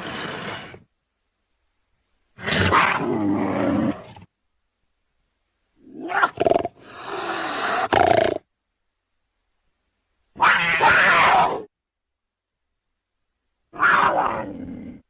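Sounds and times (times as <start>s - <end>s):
cougar calling: 10.3s - 11.7s, 13.7s - 15.0s.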